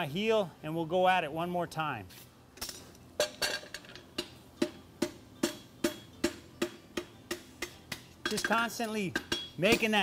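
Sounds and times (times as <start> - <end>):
hammer striking steel on anvil: 4.1 - 10.0.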